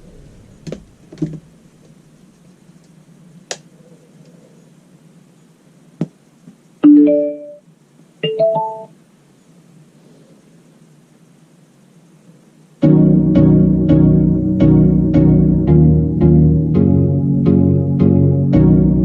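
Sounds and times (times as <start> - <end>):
low steady hum: 0.0 - 19.0
piano-like chords from speaker: 12.8 - 19.0.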